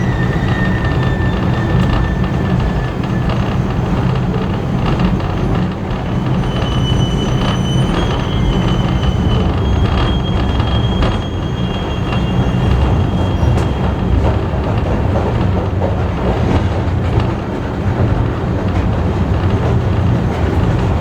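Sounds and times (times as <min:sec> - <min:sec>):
high wheel squeal: 0:00.0 - 0:15.6
train wheels rumbling on rails: 0:00.0 - 0:21.0.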